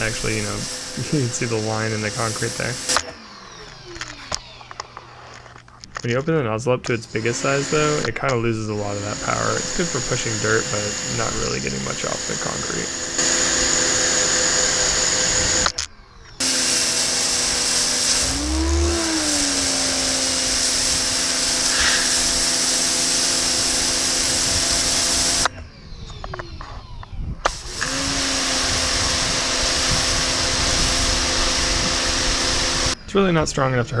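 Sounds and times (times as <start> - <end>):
water spray hiss: 0.0 - 3.0, 7.0 - 12.8, 17.7 - 25.4
pressure washer motor hum: 0.0 - 25.5, 27.5 - 33.0.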